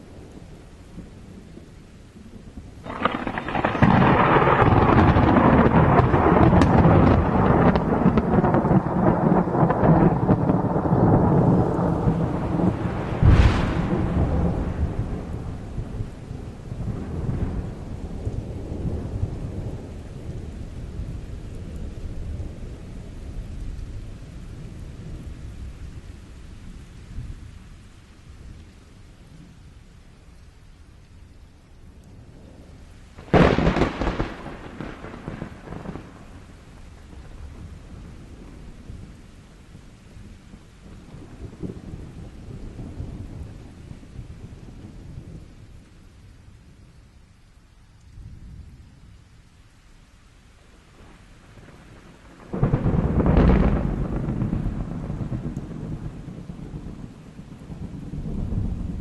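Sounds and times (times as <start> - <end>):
rolling thunder rumble: 0.0 - 29.6, 32.2 - 47.1, 50.8 - 59.0
sharp thunder crack: 2.8 - 16.0, 33.2 - 36.5, 52.4 - 57.0.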